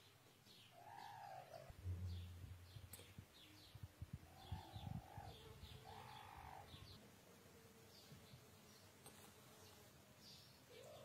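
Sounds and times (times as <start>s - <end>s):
faint bird chirps: 0.0s - 7.0s, 9.6s - 11.0s
soft low bird calls: 0.4s - 7.0s
dull low thumps: 1.7s - 4.2s.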